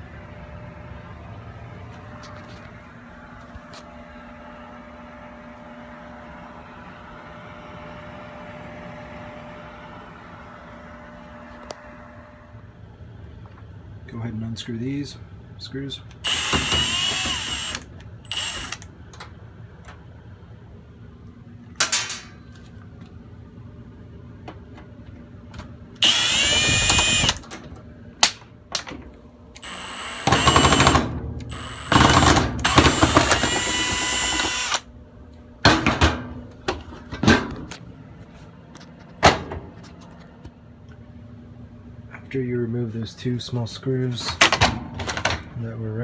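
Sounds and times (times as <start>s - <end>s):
cordless drill motor whine: 16.2s - 18.9s, 26.0s - 27.4s, 29.6s - 34.9s.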